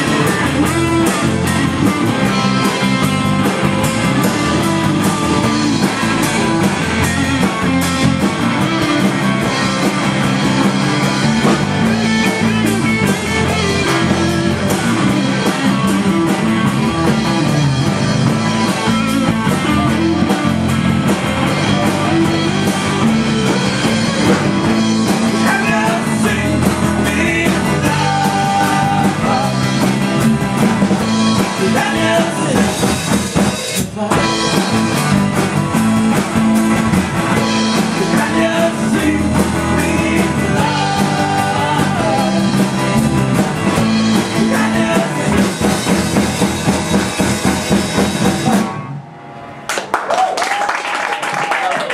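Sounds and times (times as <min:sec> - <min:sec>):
drum kit: 0:00.0 - 0:50.0
electric guitar: 0:00.0 - 0:50.3
person singing: 0:25.3 - 0:30.0, 0:31.4 - 0:32.9, 0:33.8 - 0:34.6, 0:37.8 - 0:42.9, 0:44.2 - 0:45.7.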